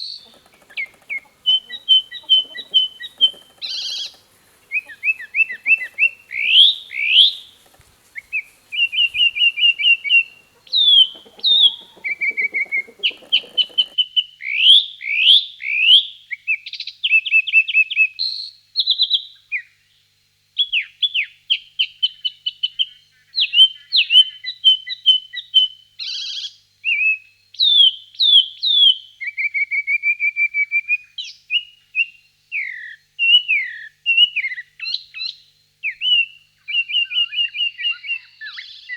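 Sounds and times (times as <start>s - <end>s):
bird singing: 0.0s - 14.0s.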